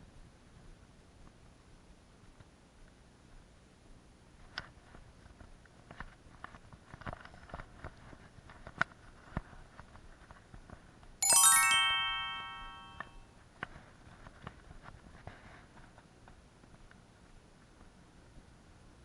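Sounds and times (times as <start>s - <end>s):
descending bell-like chime: 11.2s - 13.2s.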